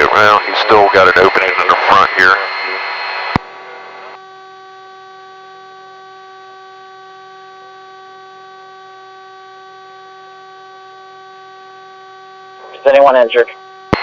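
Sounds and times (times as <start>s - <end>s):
steady hum with overtones: 0.0s - 14.0s.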